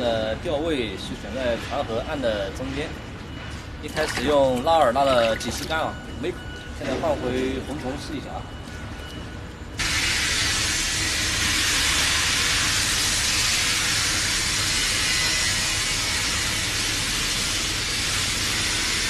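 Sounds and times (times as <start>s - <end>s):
loud steady hiss: 9.8s - 19.0s.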